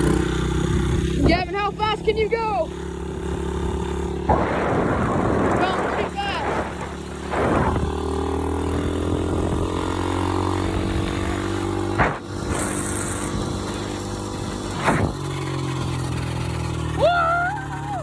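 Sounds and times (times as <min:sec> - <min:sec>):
pit bike engine running: 0:00.0 - 0:18.0
short bursts of noise: 0:04.3 - 0:08.3.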